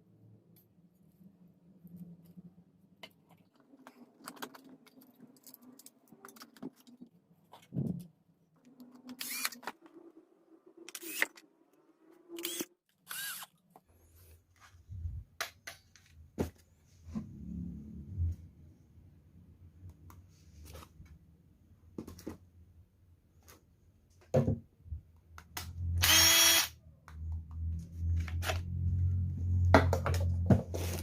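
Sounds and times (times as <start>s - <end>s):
faint low hum: 16.0s - 21.9s.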